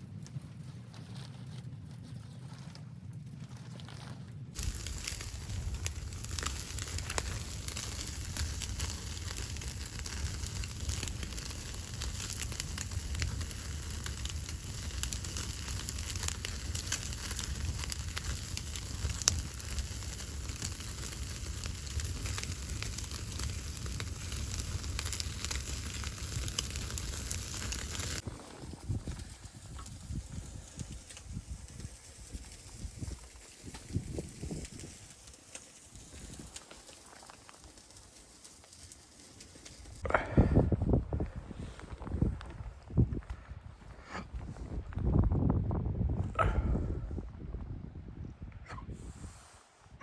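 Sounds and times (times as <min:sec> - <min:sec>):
steady low rumble: 0:00.0 - 0:36.8
wood fire crackling and popping: 0:02.7 - 0:40.2.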